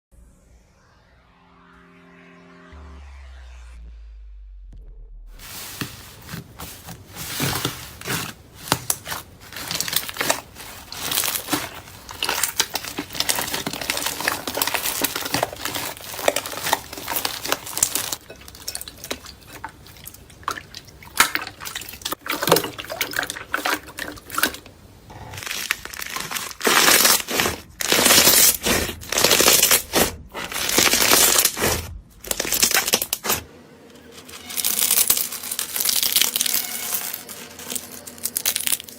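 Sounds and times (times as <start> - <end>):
slime squelching and popping: 5.4 - 24.6, 25.3 - 33.4.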